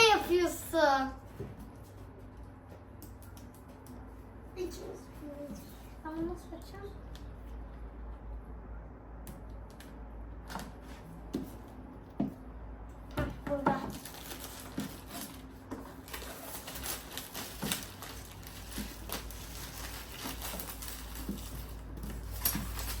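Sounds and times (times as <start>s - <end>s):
packaging rustling and crinkling: 13.9s - 23.0s.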